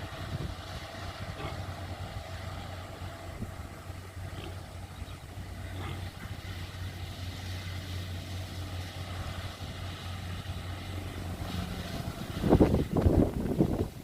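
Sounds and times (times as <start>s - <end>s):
wind buffeting microphone: 0.0s - 4.1s, 9.1s - 14.0s
combine harvester engine humming: 0.0s - 14.0s.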